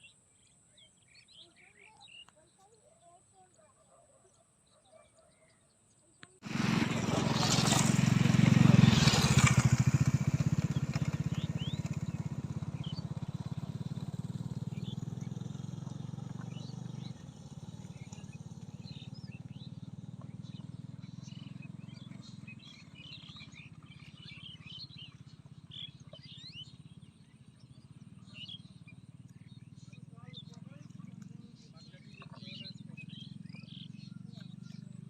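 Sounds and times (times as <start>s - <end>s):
songbirds chirping: 0.0s - 35.0s
rapidly pulsing engine drone: 6.5s - 35.0s.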